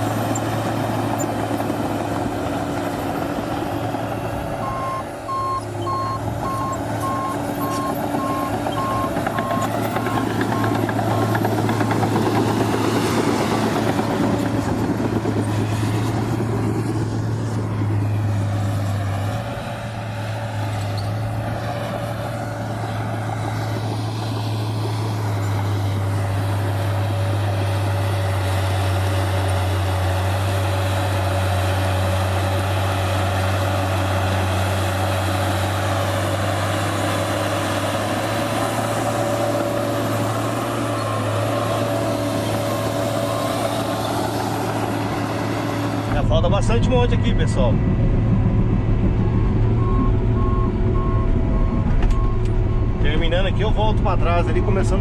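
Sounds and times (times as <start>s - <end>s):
diesel engine running under load: 0.0s - 55.0s
reversing alarm beeping: 4.6s - 11.4s, 49.1s - 55.0s.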